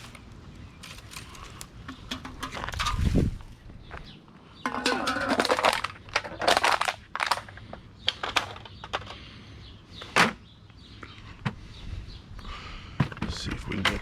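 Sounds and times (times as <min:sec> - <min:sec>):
litter crinkling and rattling: 0:00.0 - 0:03.6, 0:04.6 - 0:09.3.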